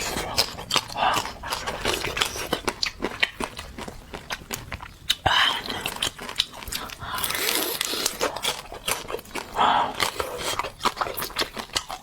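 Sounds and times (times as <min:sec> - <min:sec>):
biting and chewing fish: 0:00.0 - 0:12.0.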